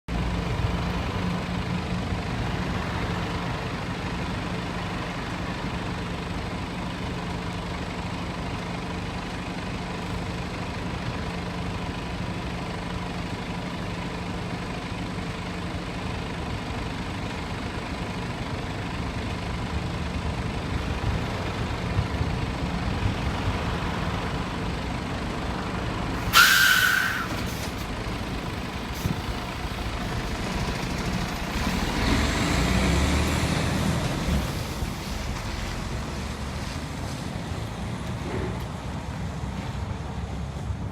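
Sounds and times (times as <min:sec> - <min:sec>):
vehicle engine and traffic: 0:00.1 - 0:40.9
short loud hiss: 0:26.2 - 0:27.8.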